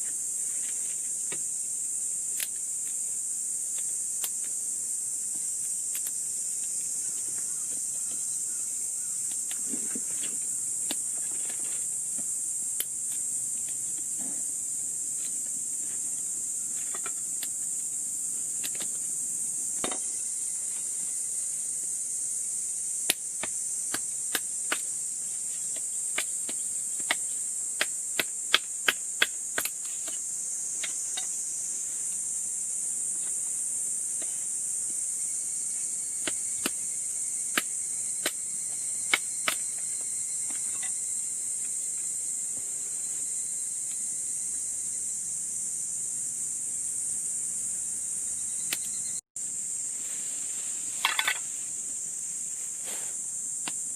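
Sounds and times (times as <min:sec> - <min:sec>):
high-pitched insect chorus: 0:00.0 - 0:53.9.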